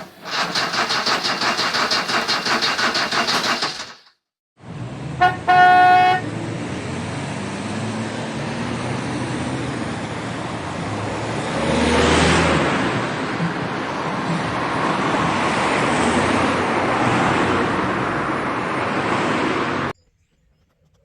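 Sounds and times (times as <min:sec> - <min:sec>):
traffic noise: 0:00.0 - 0:03.9, 0:04.6 - 0:20.0
car horn honking: 0:05.2 - 0:06.3
vehicle passing close: 0:06.2 - 0:19.9.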